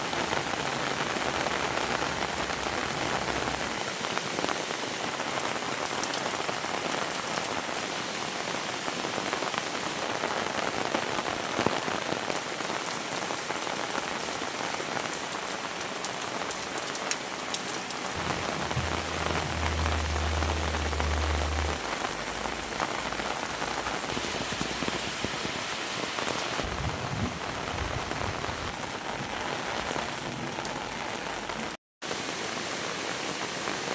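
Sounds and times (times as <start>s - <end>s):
heavy rain falling: 0.0s - 33.9s
low rumble: 0.4s - 3.7s, 18.2s - 25.2s.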